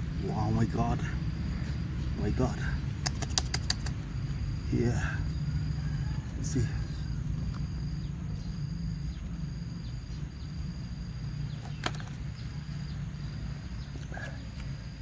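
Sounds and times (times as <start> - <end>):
sharp click: 3.0 - 4.0.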